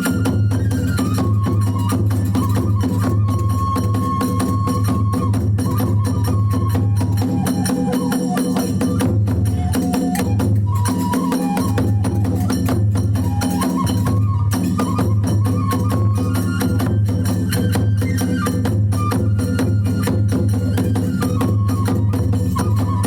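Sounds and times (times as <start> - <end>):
bamboo flute melody: 0.0 - 23.0
taiko drum roll: 0.0 - 23.0
small hand cymbals clashing: 5.6 - 22.8.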